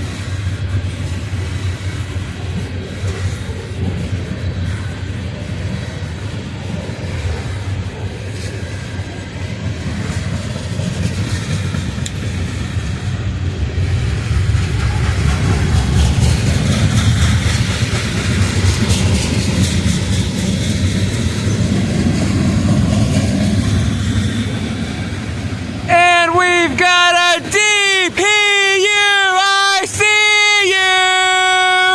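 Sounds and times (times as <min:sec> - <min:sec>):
freight train rumbling past: 0:00.0 - 0:31.9
rapid wheel clicking: 0:15.3 - 0:21.3.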